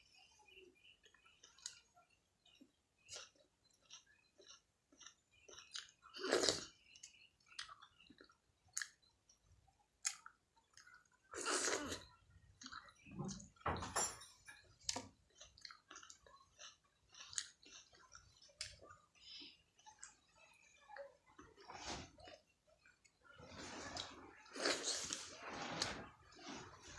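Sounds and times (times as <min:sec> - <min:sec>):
close chewing and mouth sounds: 0:00.1 - 0:13.6, 0:14.5 - 0:26.9.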